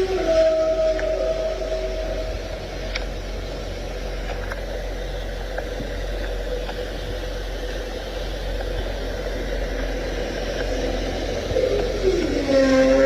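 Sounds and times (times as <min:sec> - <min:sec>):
truck engine idling: 0:00.0 - 0:13.0
faint clicks: 0:02.8 - 0:03.2, 0:04.2 - 0:07.9, 0:08.5 - 0:09.3.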